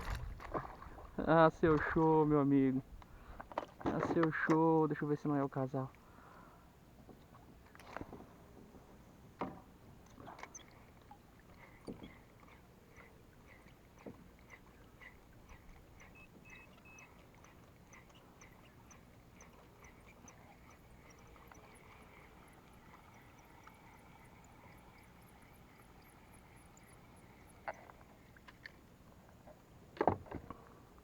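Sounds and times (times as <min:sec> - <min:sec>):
faint chirps: 0:10.2 - 0:10.9, 0:11.5 - 0:28.3.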